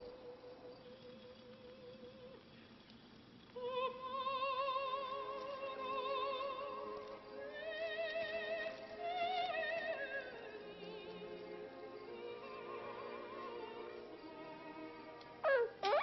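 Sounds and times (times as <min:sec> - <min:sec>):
operatic singing: 0:03.6 - 0:16.0.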